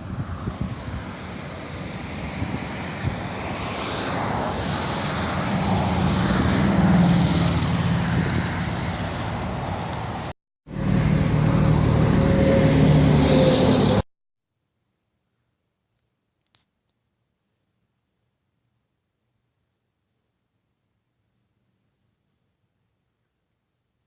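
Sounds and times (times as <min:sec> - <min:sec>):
vehicle engine and road noise: 0:00.0 - 0:14.1.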